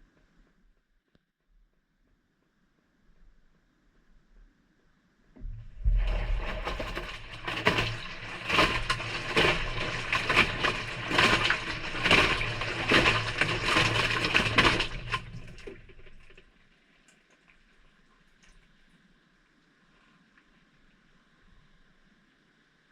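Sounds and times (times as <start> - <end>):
washing machine motor hum: 5.4 - 16.4
wet laundry sloshing in drum: 5.4 - 16.5.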